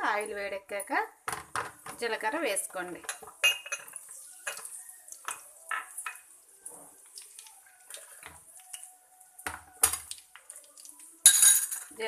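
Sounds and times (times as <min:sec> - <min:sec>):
seeds frying in oil: 0:02.1 - 0:11.3.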